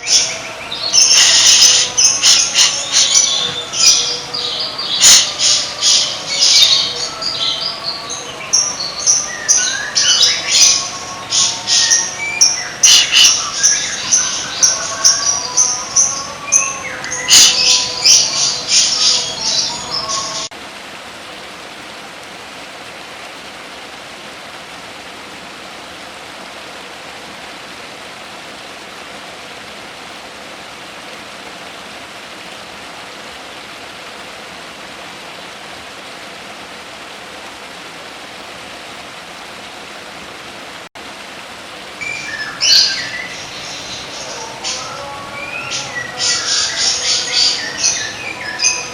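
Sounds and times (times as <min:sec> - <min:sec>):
songbird chirps and trills: 0:00.0 - 0:20.5, 0:41.8 - 0:48.9
steady hiss: 0:00.0 - 0:48.9.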